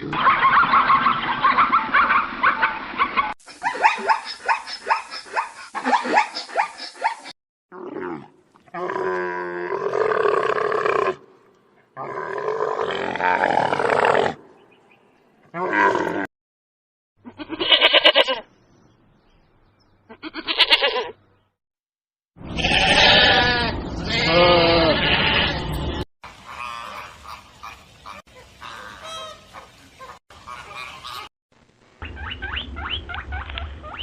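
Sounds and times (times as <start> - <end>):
livestock bleating: 17.3 - 18.4, 22.4 - 25.8.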